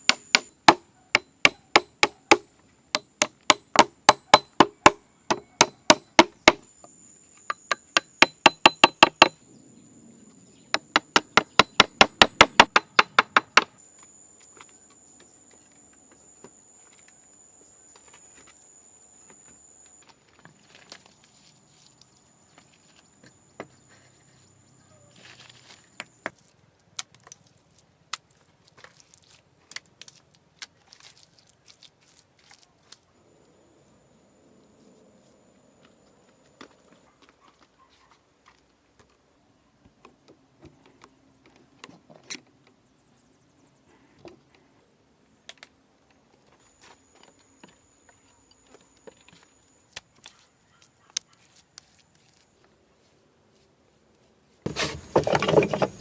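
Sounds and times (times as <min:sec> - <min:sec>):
hand tool striking wood: 0:00.0 - 0:06.6, 0:07.5 - 0:09.4, 0:10.8 - 0:13.8, 0:54.7 - 0:56.0.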